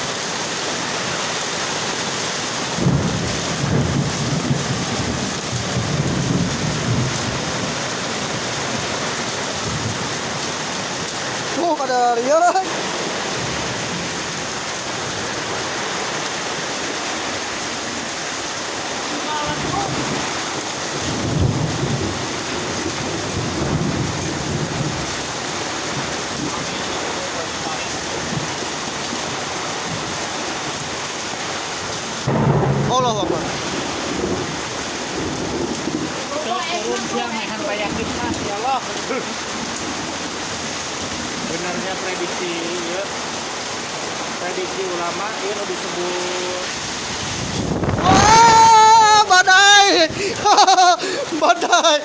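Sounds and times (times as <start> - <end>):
heavy rain and hail: 0.0 - 52.0
thunder rumbles: 2.6 - 11.5, 19.4 - 31.0, 32.2 - 38.6, 46.6 - 51.4.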